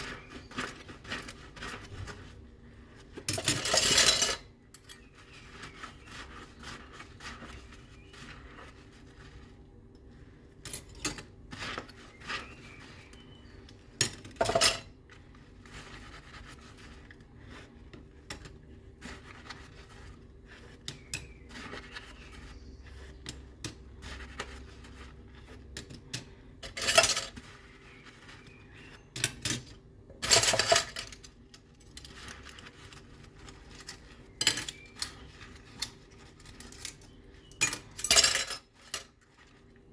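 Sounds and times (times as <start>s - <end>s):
dishes and cutlery clinking: 3.2s - 5.2s, 14.0s - 15.0s, 25.8s - 27.6s, 29.1s - 31.3s, 35.8s - 39.1s.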